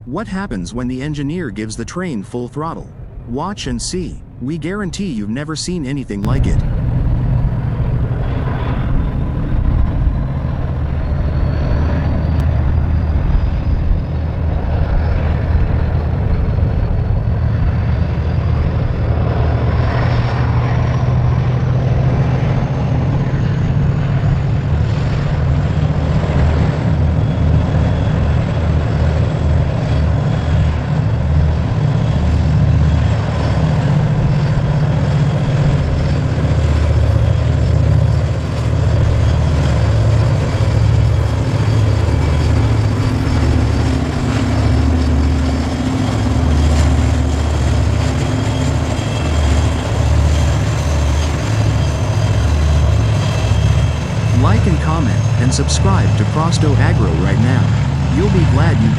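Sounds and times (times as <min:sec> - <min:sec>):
diesel locomotive engine rumble: 0:00.0 - 0:58.9
faint high whine: 0:51.0 - 0:58.9.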